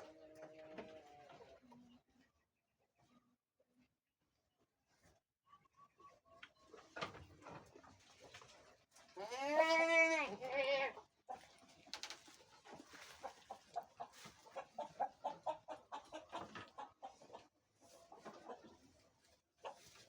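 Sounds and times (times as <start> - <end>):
goat bleating: 9.2 - 11.0.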